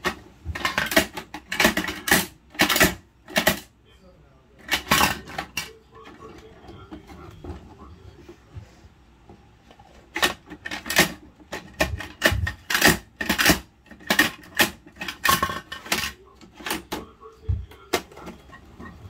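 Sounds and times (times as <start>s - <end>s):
plastic toy clacking and rattling: 0.0s - 3.7s, 4.6s - 7.1s, 10.1s - 17.1s.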